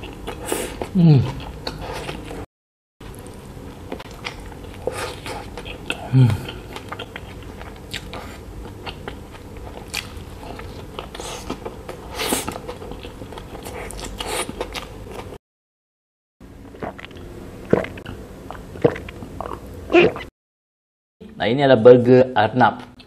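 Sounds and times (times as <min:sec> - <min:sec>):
wet chewing with crunches: 0:03.1 - 0:15.4, 0:16.7 - 0:20.3
person drinking and swallowing: 0:16.8 - 0:20.3.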